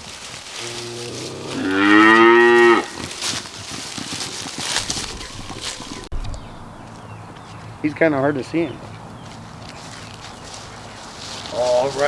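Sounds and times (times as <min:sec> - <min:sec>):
cow mooing: 0:00.6 - 0:03.2.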